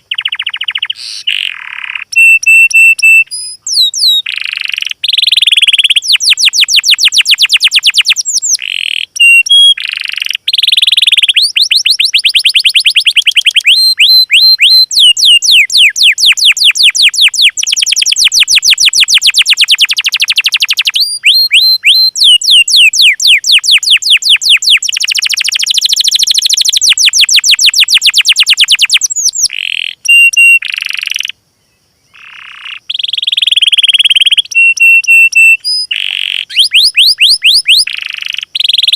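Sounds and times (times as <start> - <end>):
recorded songbird song: 0.0 - 38.9.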